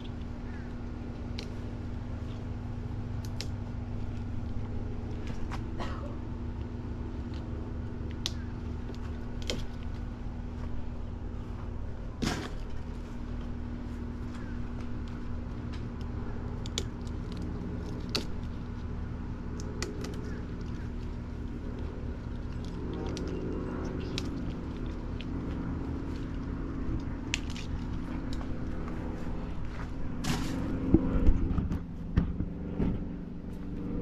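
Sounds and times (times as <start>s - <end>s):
leaves snapping as picked: 0.0s - 2.4s, 3.0s - 5.7s, 7.2s - 10.1s, 14.2s - 30.6s
steady low hum: 0.0s - 34.0s.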